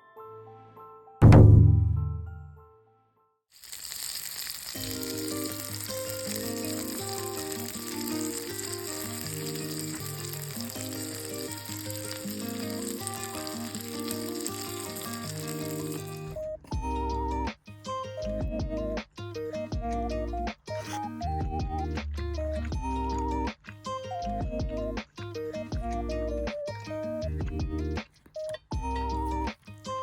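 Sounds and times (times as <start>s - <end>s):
background music: 0.0s - 3.0s, 4.7s - 30.0s
steak sizzling: 3.6s - 16.4s.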